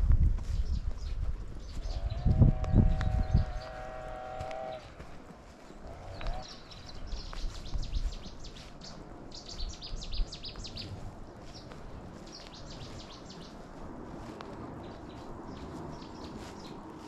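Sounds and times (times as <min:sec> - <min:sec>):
low rumbling background: 0:00.0 - 0:05.0
small birds chirping: 0:00.4 - 0:17.0.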